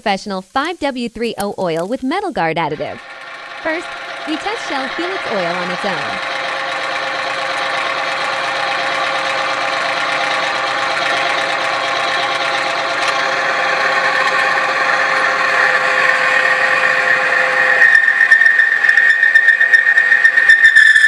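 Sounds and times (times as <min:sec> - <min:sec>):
high whining tone: 0:00.0 - 0:11.0
engine running: 0:00.0 - 0:17.8.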